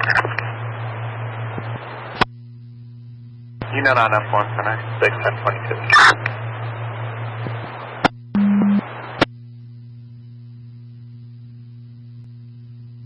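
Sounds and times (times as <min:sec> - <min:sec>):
electrical hum: 0:00.0 - 0:13.0
scanner radio click: 0:05.0 - 0:09.3.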